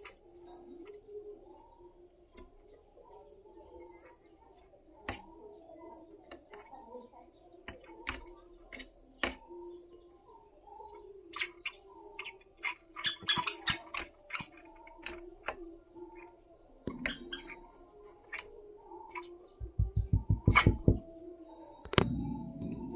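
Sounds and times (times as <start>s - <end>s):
faint bird chirping: 0.0s - 22.9s
woodpecker tapping on glass: 11.4s - 16.3s, 16.9s - 17.7s, 19.1s - 21.1s.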